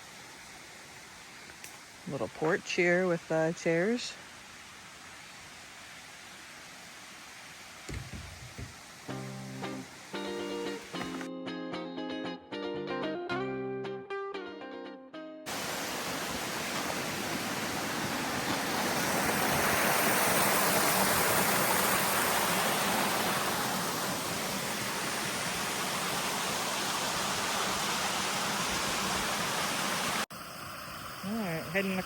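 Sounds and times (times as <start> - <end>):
waterfall rushing: 0.0 - 11.3, 15.5 - 30.3
strummed guitar music: 9.1 - 15.4.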